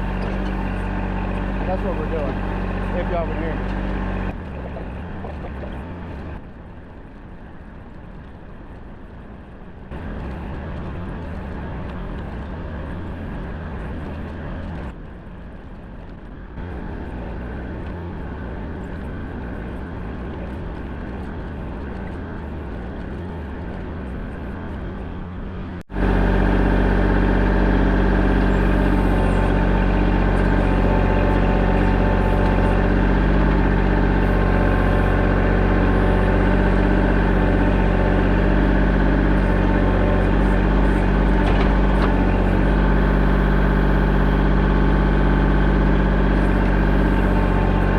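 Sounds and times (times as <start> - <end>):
digging machine engine running: 0.0 - 6.4, 16.4 - 47.9.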